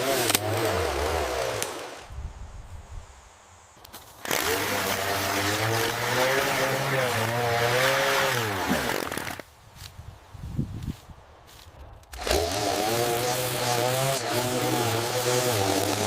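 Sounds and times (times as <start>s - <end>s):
small engine running: 12.2s - 16.0s.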